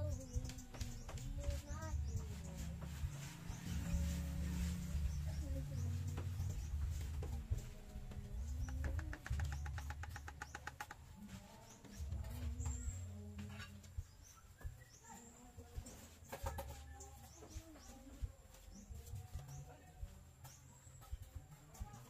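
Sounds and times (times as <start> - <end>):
birds chirping: 0.0 - 22.0
low rumbling: 1.3 - 10.0.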